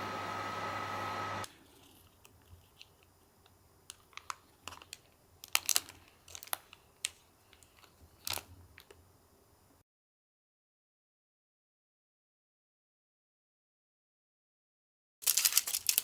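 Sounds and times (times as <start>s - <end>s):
microwave oven humming: 0.0s - 1.5s.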